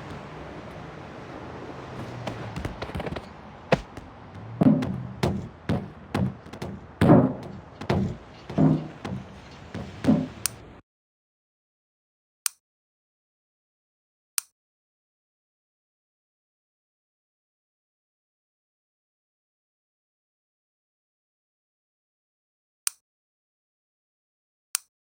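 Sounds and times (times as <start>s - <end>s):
knocks and thuds: 0.0s - 10.8s
steady low hum: 0.0s - 10.8s.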